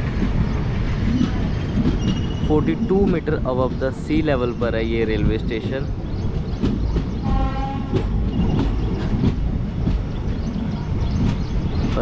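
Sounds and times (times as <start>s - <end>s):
train rumbling: 0.0s - 12.0s
wheels clicking over rail joints: 0.0s - 12.0s
train horn blast: 7.2s - 8.2s.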